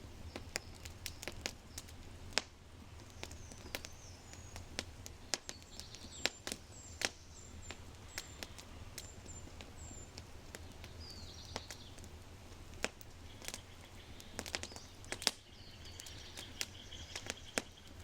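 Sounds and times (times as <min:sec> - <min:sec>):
fire crackling and popping: 0:00.0 - 0:18.0
birds chirping: 0:03.0 - 0:12.1, 0:13.1 - 0:18.0.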